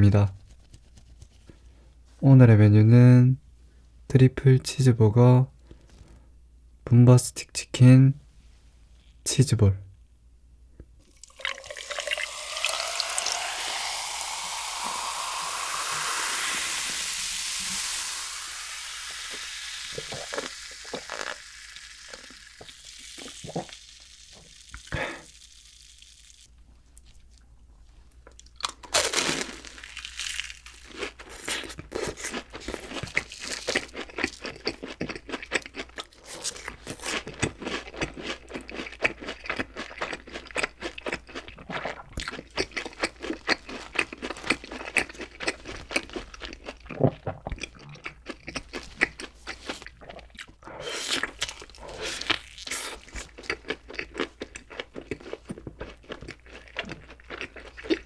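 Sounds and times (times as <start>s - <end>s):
wet chewing: 31.1s - 58.0s.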